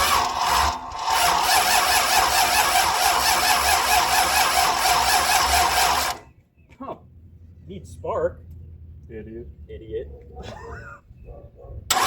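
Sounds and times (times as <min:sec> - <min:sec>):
starter motor cranking engine: 0:00.0 - 0:06.3.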